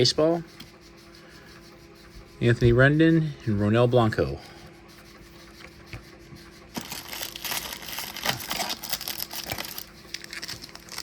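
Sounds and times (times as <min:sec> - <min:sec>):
foil wrapper crinkling and tearing: 0:06.8 - 0:11.0.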